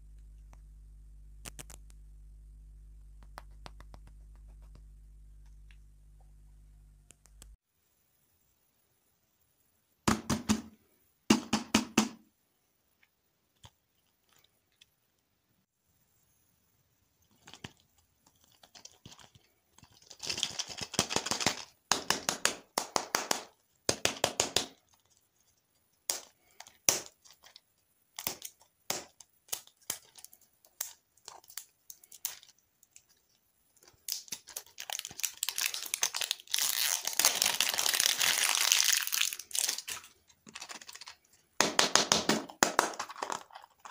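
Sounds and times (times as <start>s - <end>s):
plastic wrapper crinkling and tearing: 17.3s - 21.7s, 28.2s - 41.3s.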